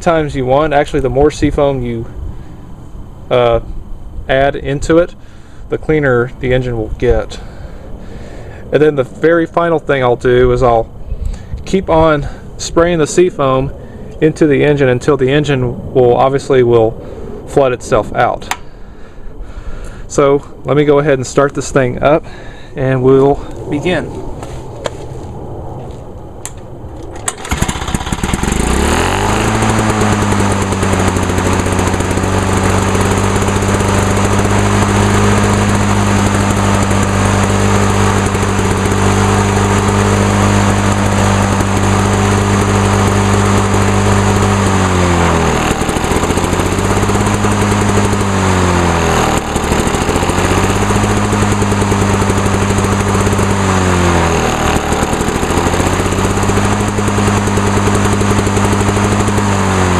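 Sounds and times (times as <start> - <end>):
two-stroke mower engine running: 27.0 - 59.9.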